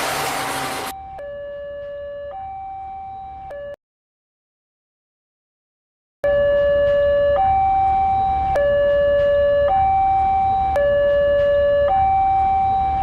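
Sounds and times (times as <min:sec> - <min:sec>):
two-tone emergency siren: 0:00.0 - 0:03.8, 0:06.2 - 0:13.0.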